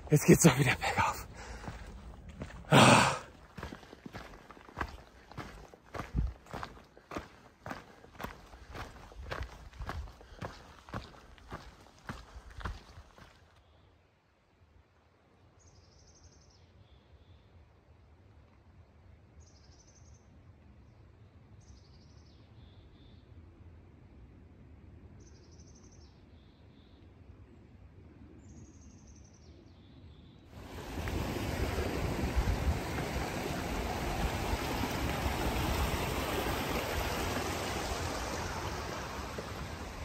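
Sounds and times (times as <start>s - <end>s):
rushing noise: 30.6s - 40.0s.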